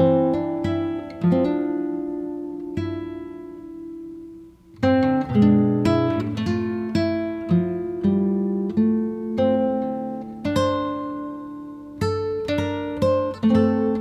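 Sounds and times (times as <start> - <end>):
acoustic guitar plucking: 0.0 - 14.0.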